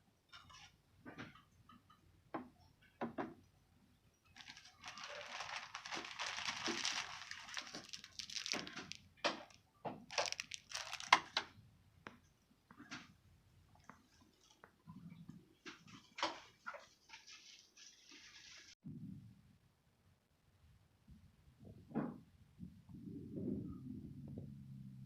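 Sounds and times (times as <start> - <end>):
plastic packaging crinkling: 4.4 - 11.4.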